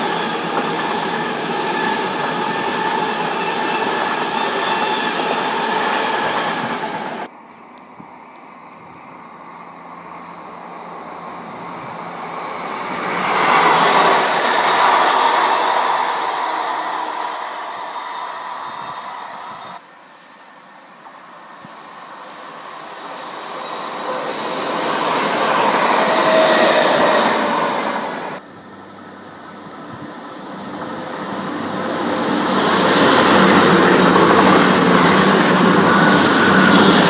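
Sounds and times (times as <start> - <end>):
train whine: 8.3 - 37.0.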